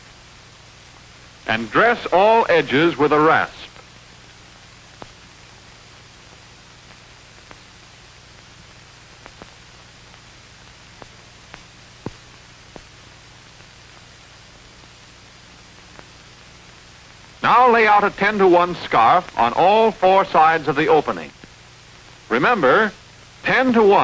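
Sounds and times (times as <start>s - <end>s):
film soundtrack hiss and hum: 0.0s - 24.0s
faint clicks and pops: 8.4s - 14.1s, 21.3s - 21.6s.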